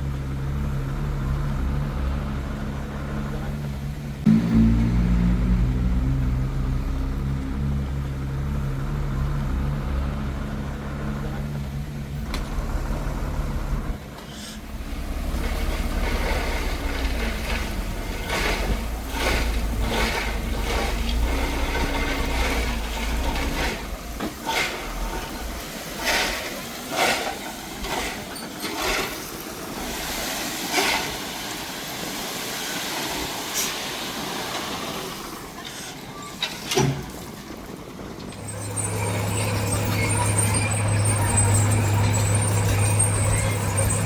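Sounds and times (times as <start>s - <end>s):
low engine drone: 0.0s - 24.3s
diesel engine with clatter: 0.0s - 44.0s.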